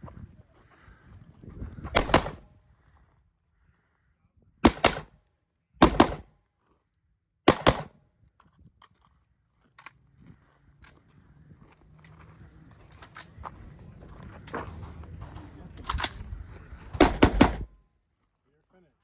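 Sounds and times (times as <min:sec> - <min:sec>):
gunshots in quick pairs: 0:01.9 - 0:02.4, 0:04.6 - 0:05.1, 0:05.8 - 0:06.3, 0:07.5 - 0:08.0, 0:17.0 - 0:17.7.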